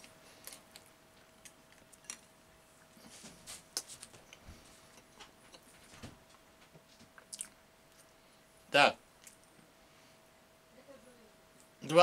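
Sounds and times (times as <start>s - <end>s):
person chewing food: 0.0s - 6.4s, 7.0s - 8.2s, 9.2s - 9.6s.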